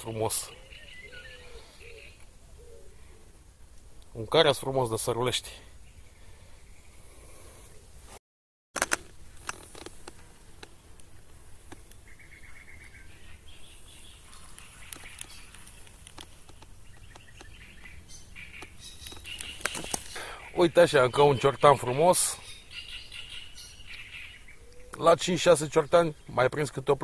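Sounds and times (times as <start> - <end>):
small birds chirping and trilling: 0.0 - 3.4, 4.4 - 7.8, 10.7 - 27.0
sharp clicks: 8.8 - 11.1.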